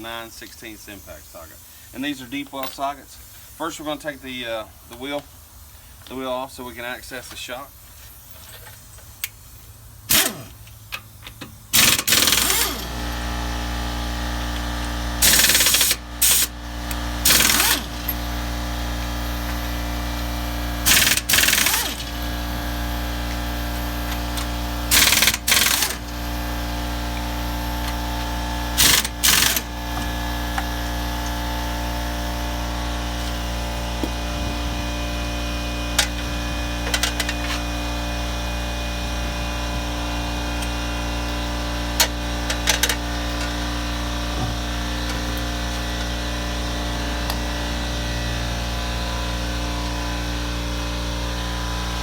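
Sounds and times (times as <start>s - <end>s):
steady mechanical hum: 0.0s - 52.0s
impact wrench rattling: 10.1s - 13.0s, 15.2s - 16.5s, 17.2s - 18.2s, 20.8s - 22.7s, 24.0s - 30.7s, 36.0s - 37.6s, 42.0s - 44.4s
metallic clicks and clanks: 42.0s - 43.6s.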